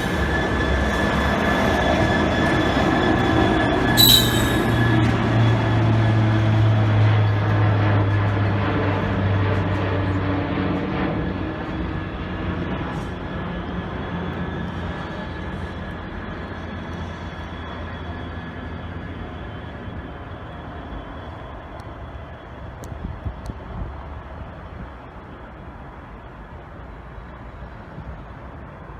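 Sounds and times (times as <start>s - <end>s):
train moving away: 0.0s - 3.3s, 3.9s - 5.0s.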